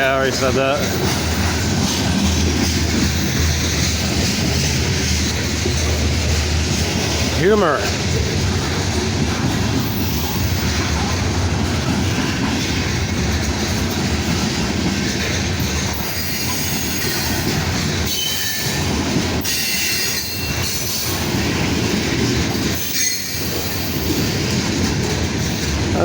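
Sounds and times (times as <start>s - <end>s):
freight train cars rumbling and rattling: 0.0s - 26.0s
high wheel squeals: 18.1s - 18.8s.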